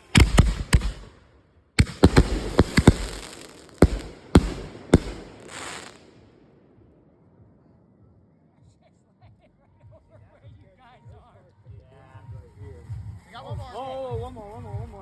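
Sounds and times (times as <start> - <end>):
firework hiss: 0.0 - 1.1, 1.8 - 6.2
fireworks bangs: 0.0 - 6.2.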